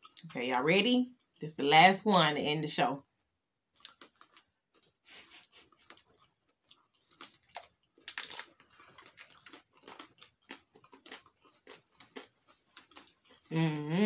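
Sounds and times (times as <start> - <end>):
crunchy chewing: 3.8 - 13.5.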